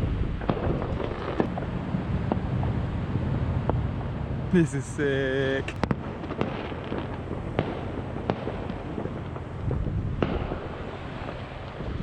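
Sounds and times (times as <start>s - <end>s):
sharp firework bangs: 0.0s - 2.5s, 5.6s - 12.0s
distant fireworks crackle and rumble: 0.0s - 12.0s.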